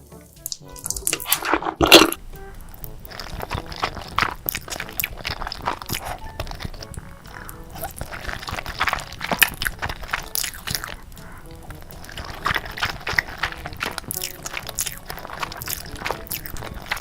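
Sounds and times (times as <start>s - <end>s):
person chewing noodles: 0.4s - 17.0s.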